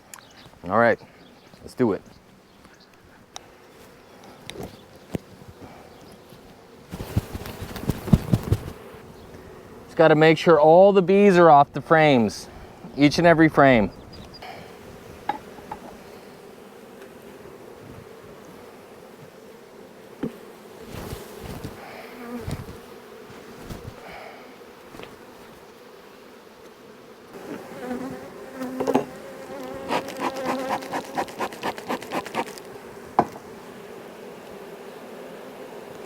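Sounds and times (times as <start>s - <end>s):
honeybees buzzing: 0.0s - 36.0s
knocks on hive boxes: 15.2s - 16.0s, 20.2s - 20.4s, 28.7s - 29.2s, 33.1s - 33.5s.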